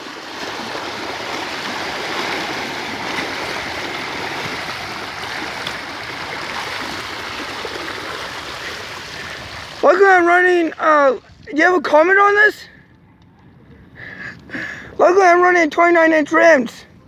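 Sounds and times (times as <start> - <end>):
bicycle tyres sloshing through water: 0.0 - 11.6.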